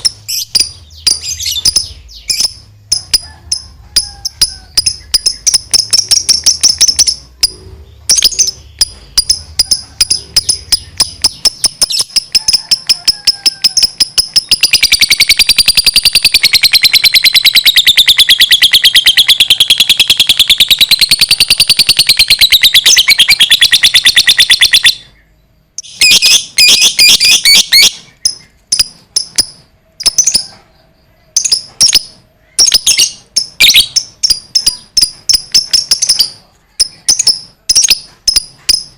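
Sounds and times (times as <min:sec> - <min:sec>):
bird chattering trill: 0:00.0 - 0:38.9
bird chirping: 0:00.0 - 0:38.9.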